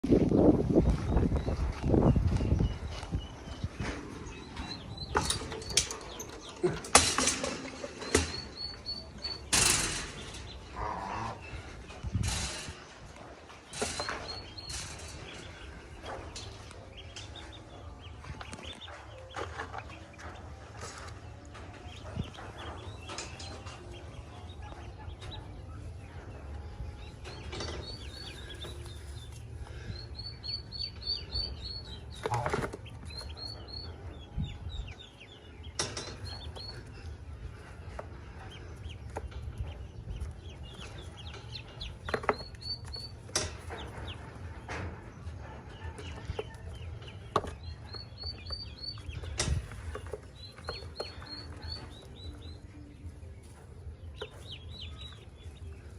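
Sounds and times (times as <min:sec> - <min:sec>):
ducklings peeping: 0:00.1 - 0:55.9.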